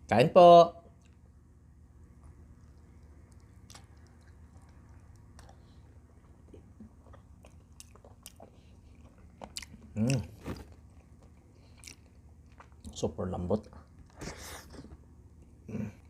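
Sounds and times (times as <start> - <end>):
close chewing: 2.1 - 14.8
hum-like voice sound: 15.6 - 16.0.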